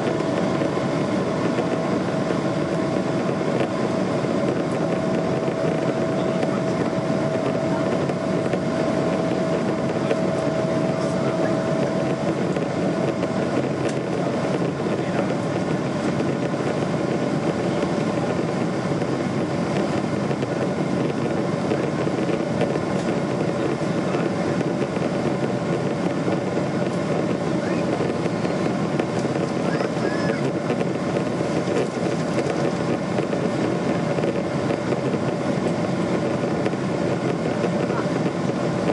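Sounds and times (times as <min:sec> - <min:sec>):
jet engines roaring: 0:00.0 - 0:38.9
thin engine whine: 0:00.0 - 0:38.9.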